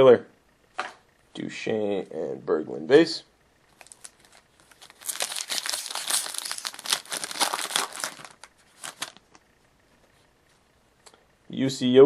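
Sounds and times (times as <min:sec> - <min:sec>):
foil wrapper crinkling and tearing: 0:03.7 - 0:09.4
cards clicking and rustling: 0:03.8 - 0:09.4.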